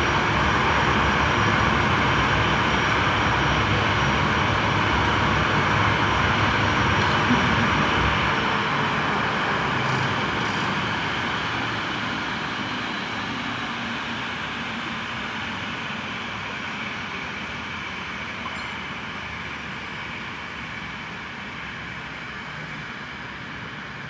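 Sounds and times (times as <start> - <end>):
jet engines roaring: 0.0 - 17.2.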